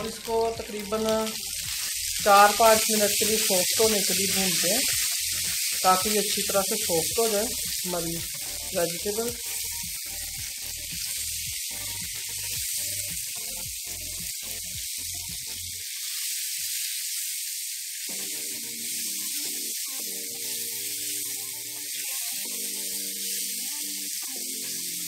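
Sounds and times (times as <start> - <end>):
music beat: 0.0 - 15.7
peppers sizzling in oil: 0.0 - 25.0.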